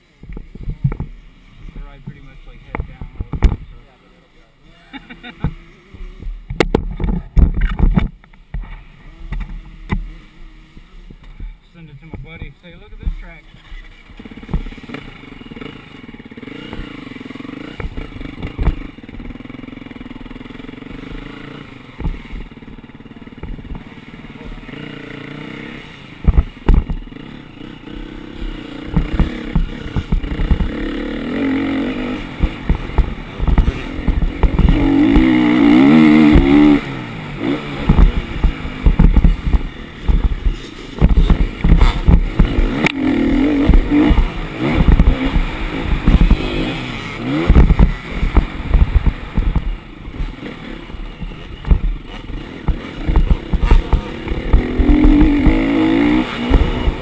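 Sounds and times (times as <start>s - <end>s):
dirt bike engine revving: 0.0s - 57.0s
sharp knocks and clatter: 26.2s - 27.1s, 28.4s - 31.0s, 32.4s - 36.8s, 37.8s - 50.3s, 51.2s - 57.0s.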